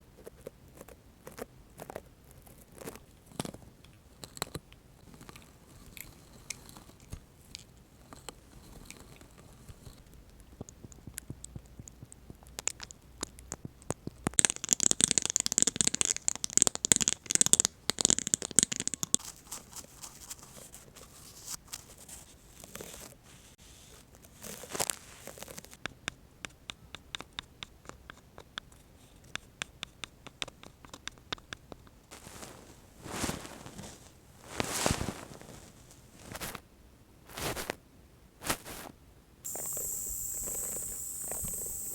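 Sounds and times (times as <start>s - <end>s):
dense crackling: 39.5s - 41.9s
quick even ticks: 39.5s - 41.9s.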